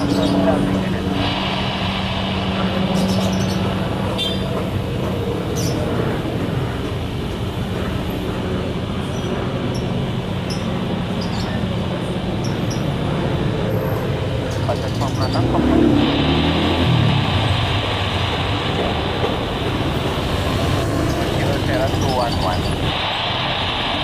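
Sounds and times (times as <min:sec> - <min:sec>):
engine humming steadily: 0:00.0 - 0:24.0.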